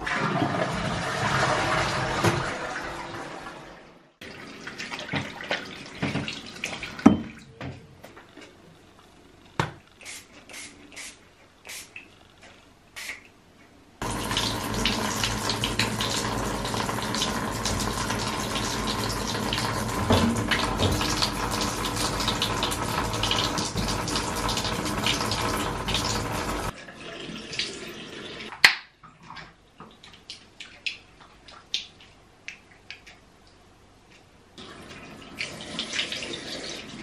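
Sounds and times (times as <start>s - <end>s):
water running from a tap: 14.0s - 28.5s, 34.6s - 37.0s.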